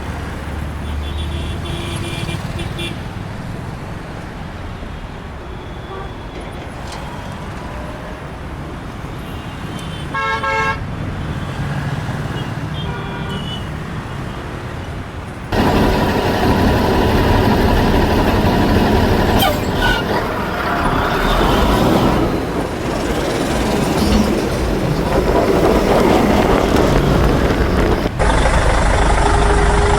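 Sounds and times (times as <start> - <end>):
vehicle engine rumble: 15.5 - 29.9.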